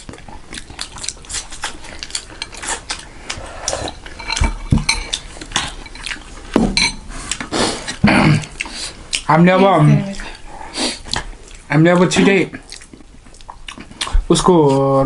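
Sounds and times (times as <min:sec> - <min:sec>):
utensils clinking against bowls: 0:03.8 - 0:07.0.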